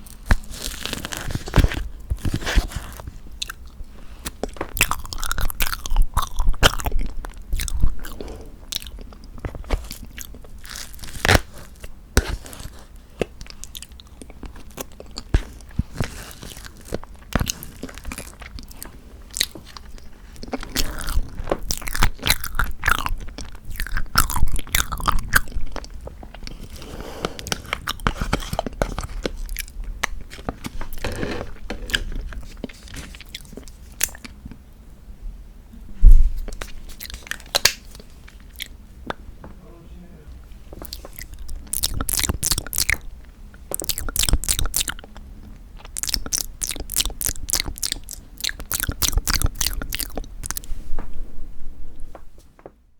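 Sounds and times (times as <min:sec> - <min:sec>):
close-miked chewing: 0:00.0 - 0:34.6, 0:36.4 - 0:39.2, 0:40.3 - 0:50.7
wet mouth clicks and smacks: 0:45.8 - 0:50.6.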